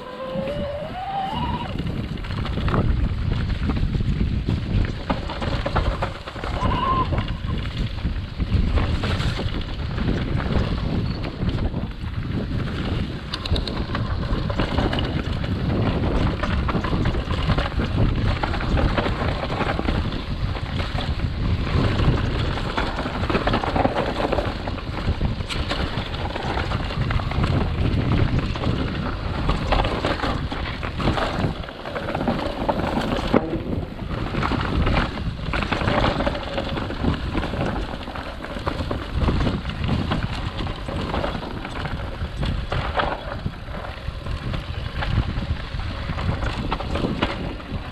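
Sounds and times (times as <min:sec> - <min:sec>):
mountain bike rumbling and rattling: 0:00.0 - 0:47.9
wind rushing over microphone: 0:00.0 - 0:47.9
bike knocking over bumps: 0:13.7 - 0:45.4.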